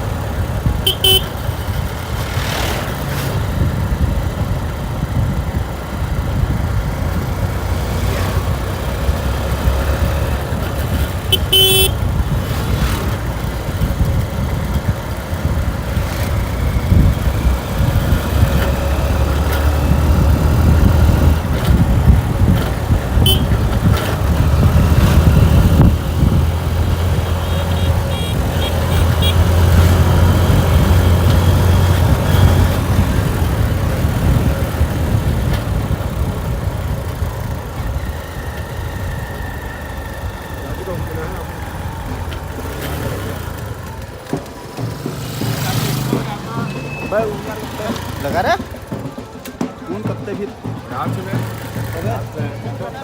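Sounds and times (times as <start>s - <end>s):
motorcycle engine rumble: 0.0s - 53.0s
short horn beeps: 0.9s - 1.4s, 11.3s - 12.0s, 23.2s - 23.7s, 27.2s - 29.6s, 46.6s - 47.4s
wind on microphone: 19.8s - 30.9s.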